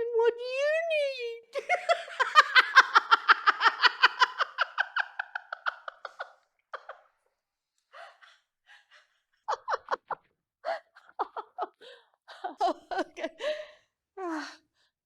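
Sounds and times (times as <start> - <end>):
high-pitched laugh: 1.6 - 7.1, 9.5 - 13.5
breaths and gasps: 7.8 - 9.3, 10.6 - 11.0, 11.8 - 12.6, 13.4 - 15.0.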